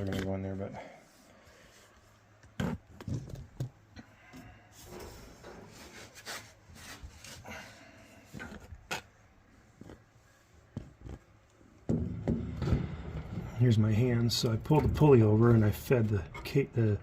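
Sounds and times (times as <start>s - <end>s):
sharp knocks and clicks: 11.9s - 13.6s.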